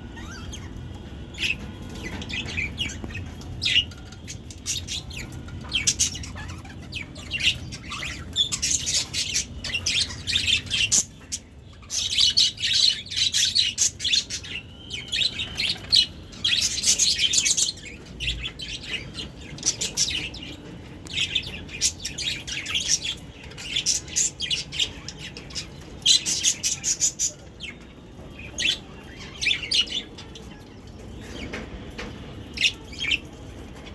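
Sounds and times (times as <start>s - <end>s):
budgerigars chirping: 1.4s - 27.8s.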